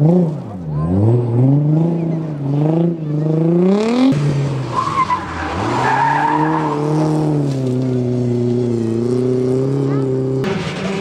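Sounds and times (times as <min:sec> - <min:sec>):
rally car engine revving: 0:00.0 - 0:11.0
tyre squeal: 0:04.7 - 0:07.5.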